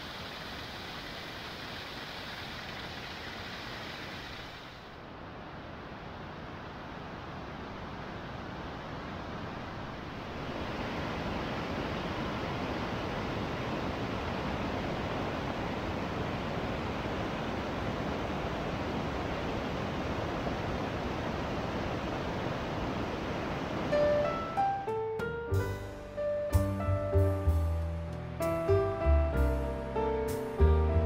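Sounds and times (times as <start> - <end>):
water rushing down cascades: 0.0 - 24.4.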